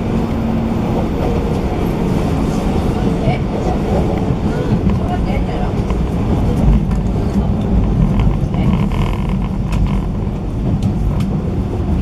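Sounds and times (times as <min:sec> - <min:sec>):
train low rumble: 0:00.0 - 0:12.0.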